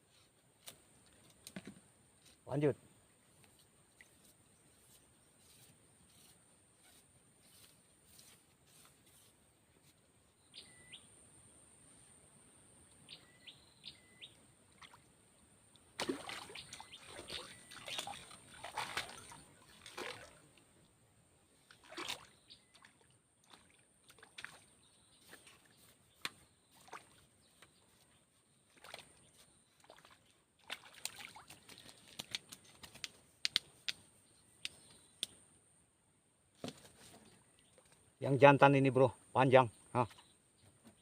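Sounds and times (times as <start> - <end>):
light water splashes: 3.4 - 4.4, 14.6 - 15.1, 15.7 - 20.9, 21.6 - 27.8, 28.7 - 34.0.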